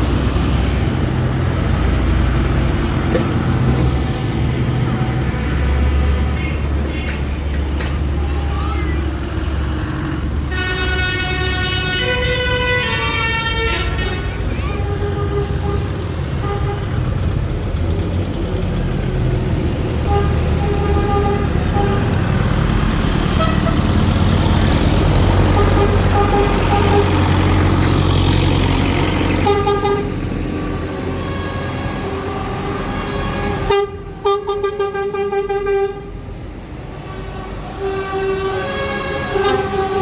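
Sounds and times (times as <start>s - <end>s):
tractors and lorries driving past: 0.0s - 40.0s
vehicle horns tooting: 6.1s - 9.1s, 10.5s - 17.0s, 20.0s - 22.2s, 23.4s - 23.9s, 25.4s - 27.4s, 29.4s - 36.2s, 37.0s - 40.0s
fast-pulsing horn: 10.5s - 16.8s, 29.4s - 30.2s, 37.1s - 40.0s.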